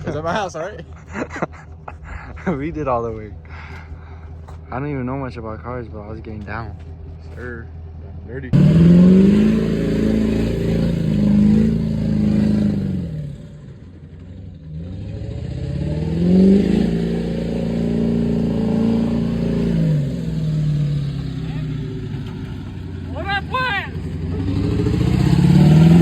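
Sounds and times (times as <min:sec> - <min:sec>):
diesel engine revving: 0:08.4 - 0:26.0.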